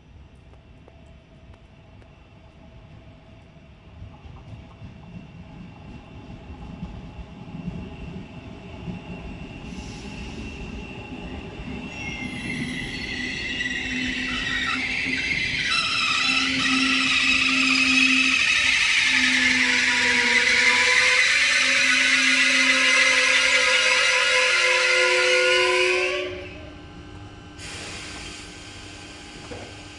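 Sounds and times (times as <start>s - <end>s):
train brakes squealing: 9.4s - 26.6s, 27.6s - 29.0s.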